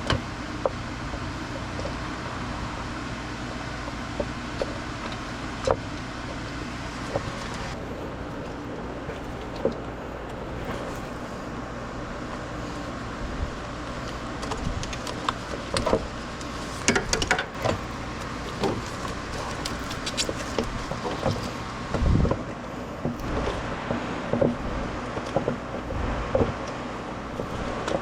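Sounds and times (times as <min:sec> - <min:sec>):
steady low hum: 0:00.0 - 0:28.0
hand tools clicking and knocking: 0:14.4 - 0:21.6.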